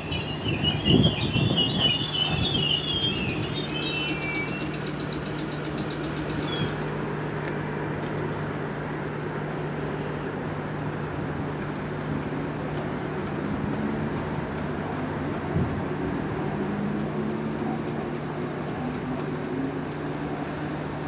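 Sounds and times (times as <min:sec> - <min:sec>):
electric train humming: 0:00.0 - 0:21.0.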